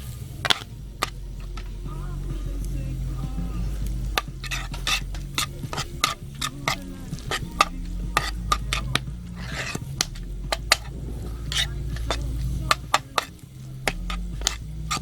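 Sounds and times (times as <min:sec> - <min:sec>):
metal spatula scraping frying pan: 0:00.0 - 0:01.9, 0:02.9 - 0:15.0.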